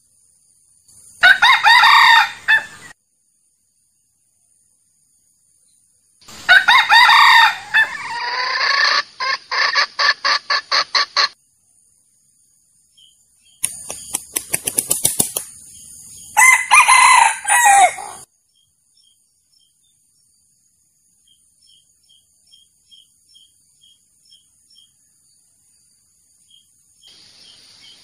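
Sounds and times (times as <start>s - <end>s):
rooster cackling and clucking: 1.2s - 2.9s, 6.3s - 11.4s, 16.2s - 18.3s
rooster crowing: 1.2s - 2.9s, 6.5s - 8.8s, 16.4s - 18.3s.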